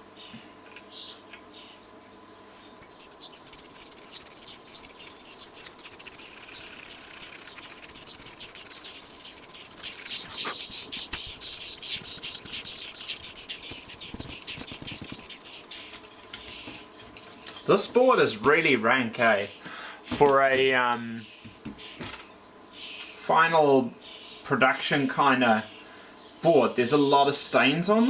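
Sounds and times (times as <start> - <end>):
brush scrubbing circuit board: 3.4 - 15.9.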